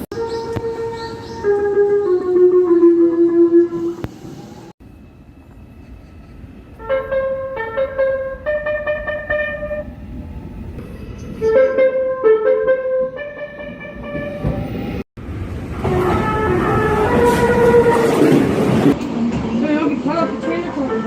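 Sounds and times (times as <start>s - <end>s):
running train: 0.0s - 21.0s
train horn blasts: 6.8s - 9.9s, 11.4s - 14.6s, 15.7s - 18.9s, 20.4s - 21.0s.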